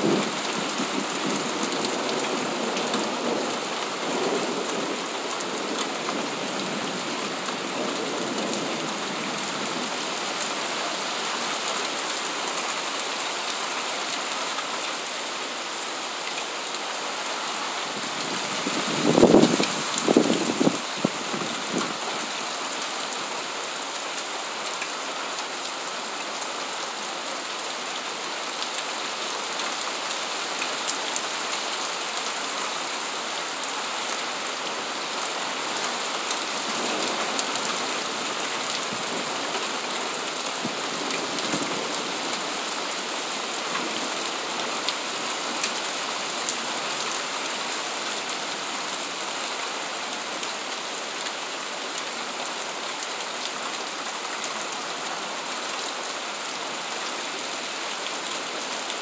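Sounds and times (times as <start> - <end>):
steady rain hissing: 0.0 - 59.0.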